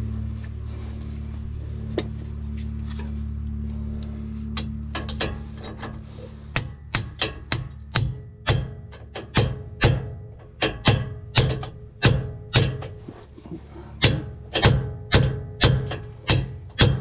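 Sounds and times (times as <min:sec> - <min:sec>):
hammer striking metal: 0:06.6 - 0:12.9, 0:14.0 - 0:17.0.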